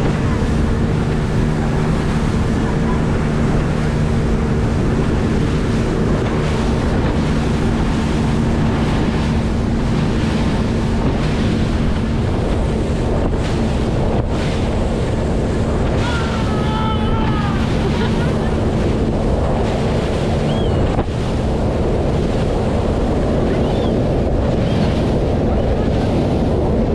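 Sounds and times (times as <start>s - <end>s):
boat motor hum: 0.0s - 26.9s
water noise: 0.0s - 26.9s
wind buffeting microphone: 0.0s - 26.9s.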